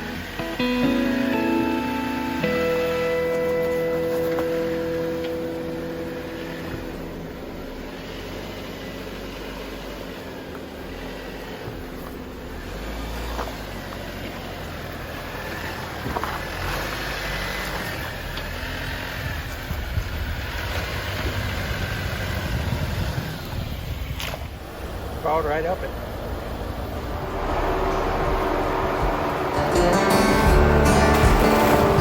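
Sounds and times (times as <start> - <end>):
off-road vehicle engine crawling: 0.0 - 32.0.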